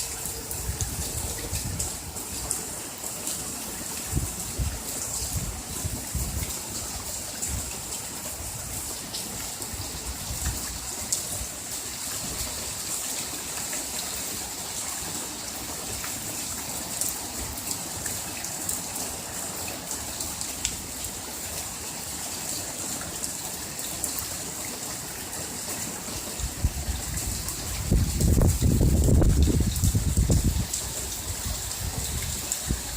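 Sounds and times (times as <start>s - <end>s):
heavy rain falling: 0.0s - 32.9s
wind buffeting microphone: 0.1s - 2.6s, 4.1s - 8.9s, 26.4s - 32.9s.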